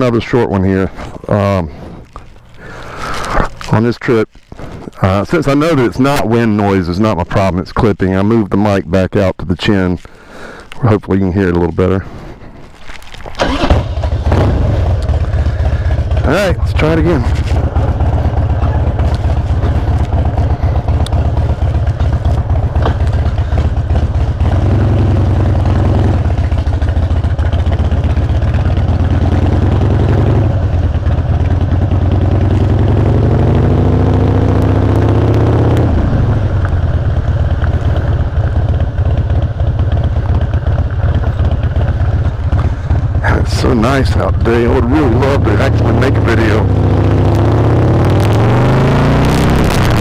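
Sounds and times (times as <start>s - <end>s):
rider speaking: 0.0s - 2.0s, 2.6s - 10.1s, 10.7s - 12.3s, 14.8s - 24.5s, 41.1s - 46.8s
motorcycle engine revving: 13.3s - 50.0s.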